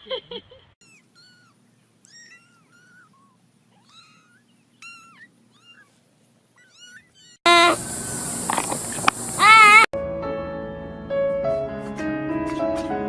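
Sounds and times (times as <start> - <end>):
cat mewing: 0.8 - 7.8, 9.4 - 9.9.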